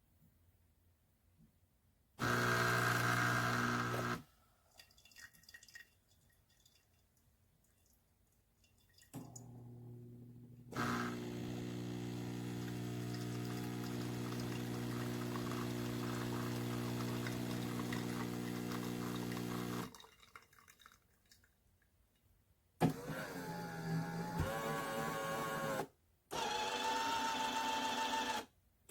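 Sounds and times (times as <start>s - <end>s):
espresso machine pump humming: 2.2s - 4.2s, 10.7s - 19.9s
liquid pouring into a cup: 3.6s - 9.5s, 10.8s - 21.6s
liquid dripping: 4.6s - 9.5s, 13.0s - 21.9s.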